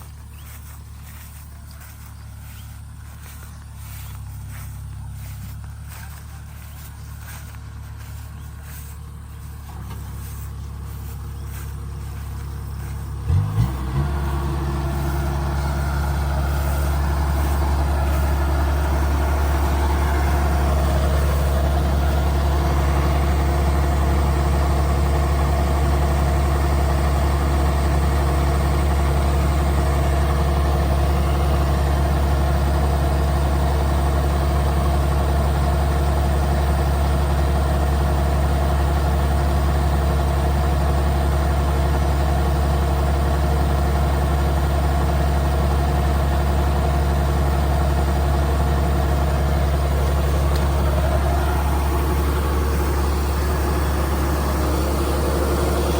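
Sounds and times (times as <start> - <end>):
combine harvester diesel engine: 0.0 - 55.9.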